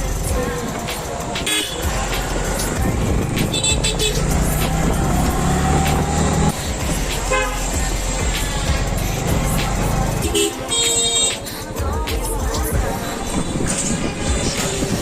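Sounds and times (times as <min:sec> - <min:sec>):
engine and road noise: 0:00.0 - 0:15.0
vehicle horns honking: 0:01.4 - 0:01.9, 0:03.5 - 0:04.4, 0:07.2 - 0:07.8, 0:10.2 - 0:11.5.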